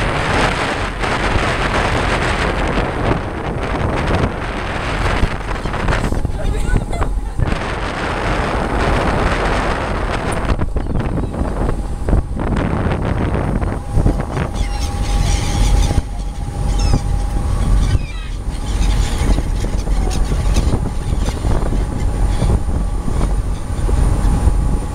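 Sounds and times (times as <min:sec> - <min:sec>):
boat engine rumbling: 0:00.0 - 0:24.9
wind on microphone: 0:00.0 - 0:24.9
seagull cries: 0:14.1 - 0:22.6.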